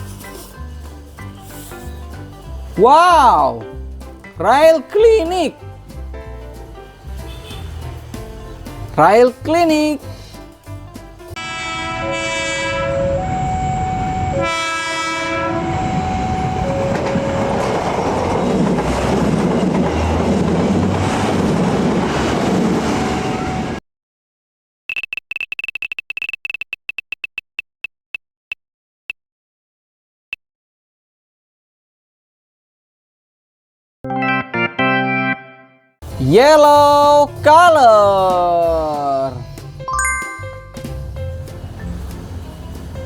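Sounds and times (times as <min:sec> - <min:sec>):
train horn: 0:07.3 - 0:07.8, 0:11.4 - 0:18.0, 0:22.8 - 0:23.8
train running on rails: 0:13.0 - 0:23.8, 0:41.2 - 0:43.0.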